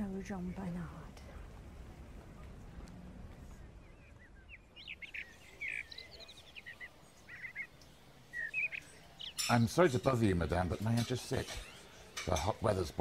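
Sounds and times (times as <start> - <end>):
faint background hush: 0.0 - 13.0
small birds chirping: 3.3 - 13.0.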